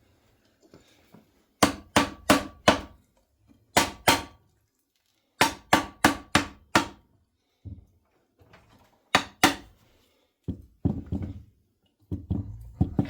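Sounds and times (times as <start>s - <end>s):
hammer striking metal: 3.8s - 4.3s, 5.4s - 7.0s.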